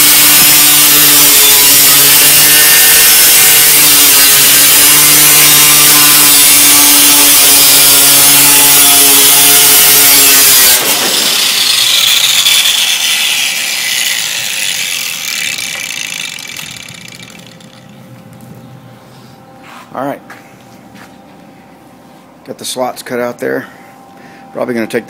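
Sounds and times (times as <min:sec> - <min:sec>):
power tool cutting sheet metal: 0:00.0 - 0:17.8
high whir of tool spinning down: 0:00.0 - 0:18.0.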